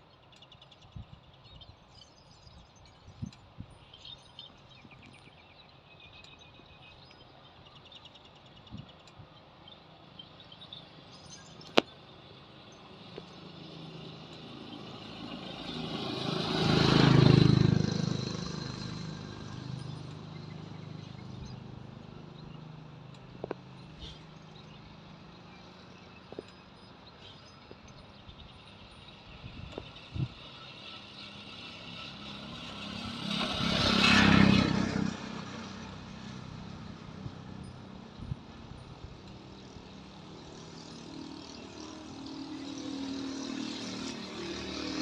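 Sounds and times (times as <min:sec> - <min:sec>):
motor vehicle passing by: 0:12.3 - 0:45.0.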